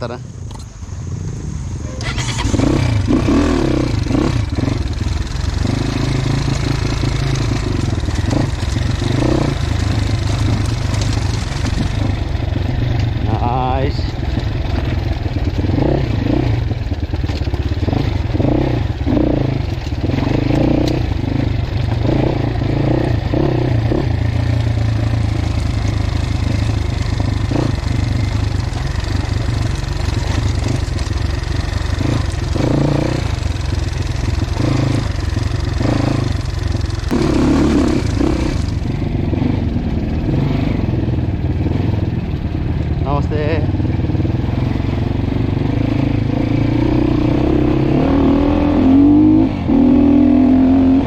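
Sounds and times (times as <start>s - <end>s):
dirt bike engine revving: 1.1s - 51.0s
bike clattering over terrain: 7.8s - 12.4s.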